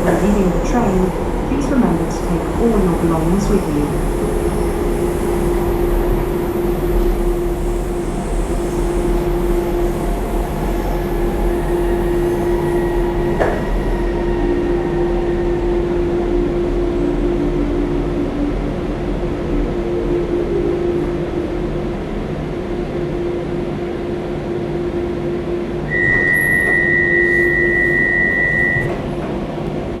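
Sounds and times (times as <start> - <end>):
constant humming tone: 0.0 - 29.4
train rumble inside carriage: 0.0 - 30.0
steady high beep: 25.9 - 28.9.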